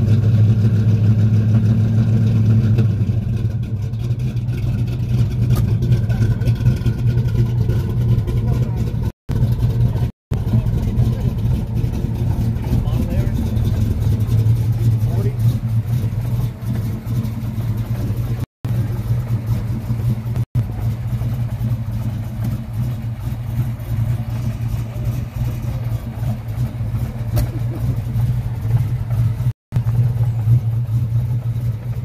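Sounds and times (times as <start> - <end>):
car engine idling choppily: 0.0 - 32.0.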